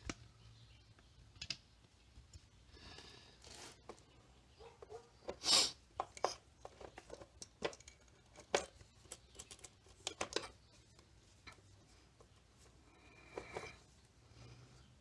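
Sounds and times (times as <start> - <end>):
small metallic clicks and taps: 0.9 - 2.5, 6.0 - 12.4
metal scrape: 13.0 - 13.9.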